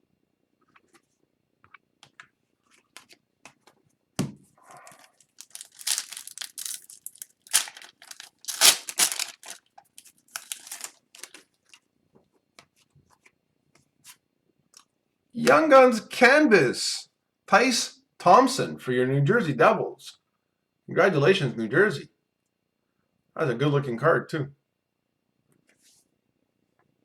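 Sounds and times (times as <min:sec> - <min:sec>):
plastic wrapper tearing and crinkling: 0:04.9 - 0:11.8.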